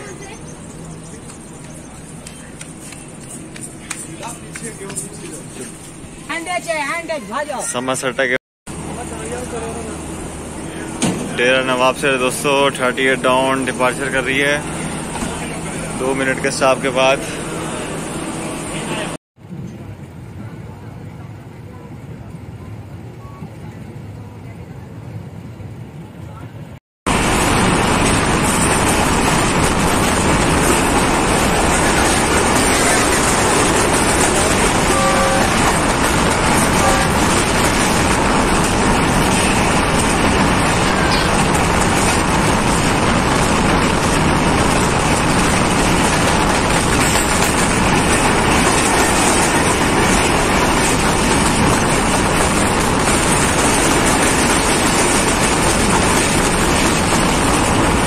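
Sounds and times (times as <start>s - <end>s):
train running at speed: 0.0s - 58.0s
faint train horn toot: 34.5s - 37.4s.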